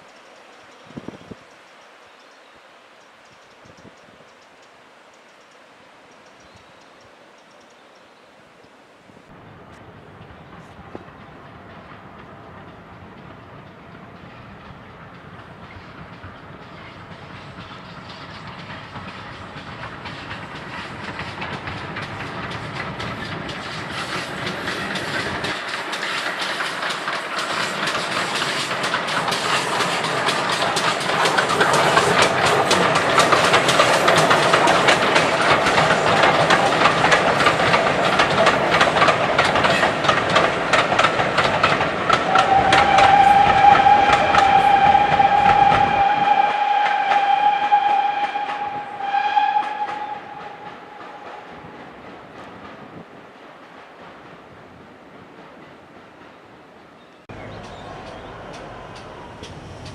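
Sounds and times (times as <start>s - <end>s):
train wheels clicking over rail joints: 9.6s - 59.9s
train warning horn: 42.2s - 52.0s.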